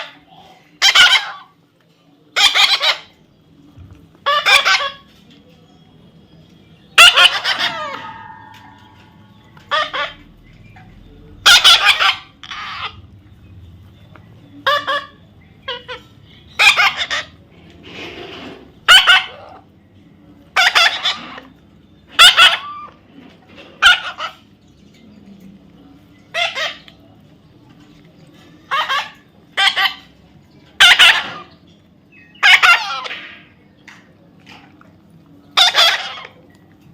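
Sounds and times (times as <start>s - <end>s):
parrot squawking: 0.0s - 1.6s, 2.4s - 3.2s, 4.2s - 5.1s, 7.0s - 10.8s, 11.4s - 13.1s, 14.6s - 17.4s, 18.8s - 19.7s, 20.5s - 23.0s, 23.7s - 24.5s, 26.3s - 26.9s, 28.6s - 30.2s, 30.8s - 31.6s, 32.3s - 33.4s, 35.5s - 36.4s.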